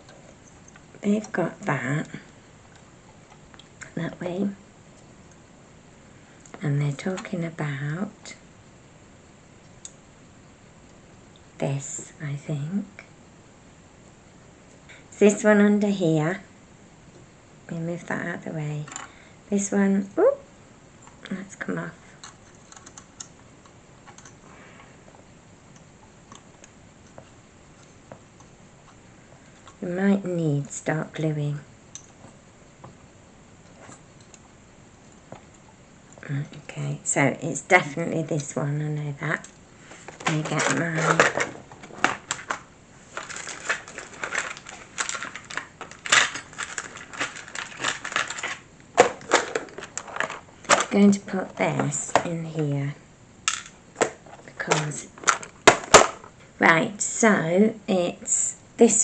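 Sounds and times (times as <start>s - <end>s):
small plastic parts clicking: 22.2s - 24.4s, 43.2s - 51.0s.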